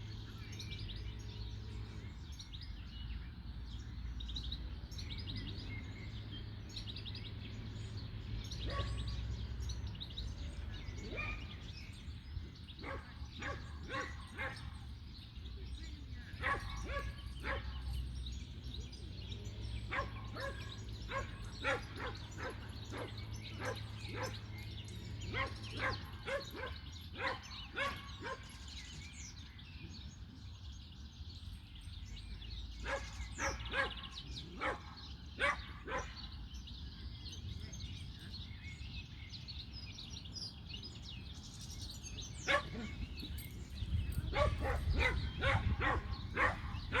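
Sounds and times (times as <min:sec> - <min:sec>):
dog barking: 0:08.6 - 0:09.0, 0:12.8 - 0:14.8, 0:16.4 - 0:17.8, 0:19.9 - 0:24.4, 0:25.3 - 0:28.5, 0:32.8 - 0:36.2, 0:42.4 - 0:43.1, 0:44.2 - 0:47.0.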